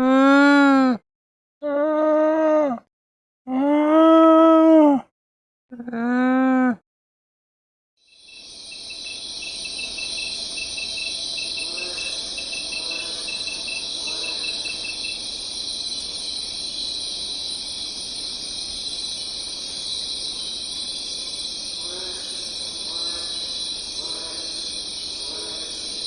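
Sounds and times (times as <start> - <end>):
high-pitched cricket chorus: 8.1 - 26.0
pulsed insect trill: 8.1 - 26.0
faint lower calls: 9.0 - 15.6.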